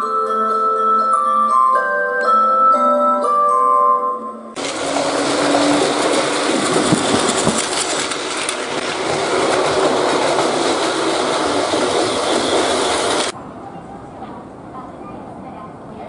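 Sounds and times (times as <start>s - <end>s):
train wheels clattering on rails: 4.6s - 13.4s.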